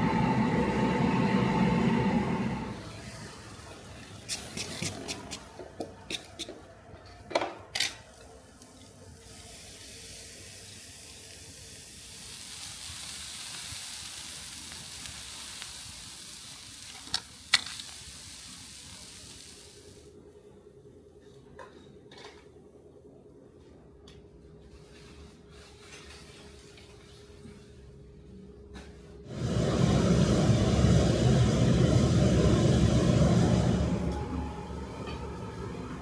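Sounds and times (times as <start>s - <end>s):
steady hiss: 9.2s - 20.1s.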